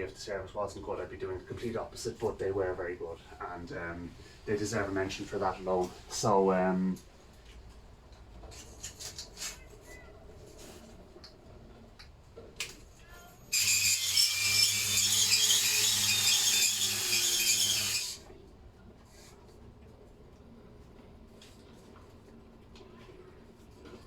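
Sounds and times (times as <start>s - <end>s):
cordless drill honing metal bore: 13.5s - 18.2s.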